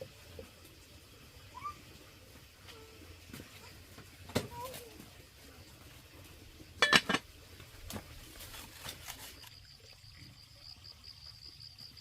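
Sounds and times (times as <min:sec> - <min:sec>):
sharp knocks and clinks: 0:06.8 - 0:07.2
cricket chirring: 0:09.0 - 0:12.0.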